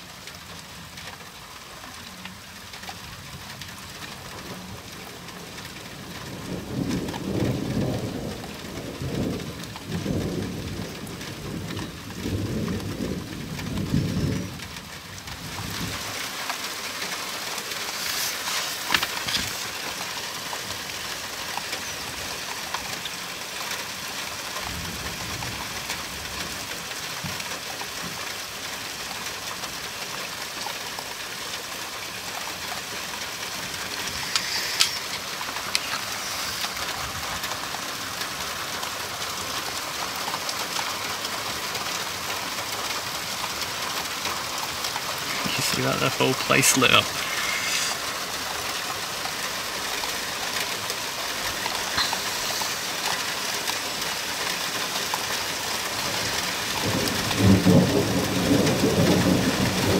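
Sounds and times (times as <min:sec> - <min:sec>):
sharp taps of raindrops: 0:00.0 - 0:59.9
steady rain: 0:00.0 - 0:59.9.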